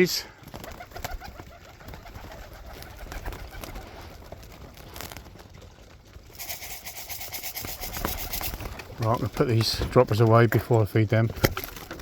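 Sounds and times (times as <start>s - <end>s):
pigeons cooing: 0.5s - 9.9s
hiss: 6.4s - 8.3s.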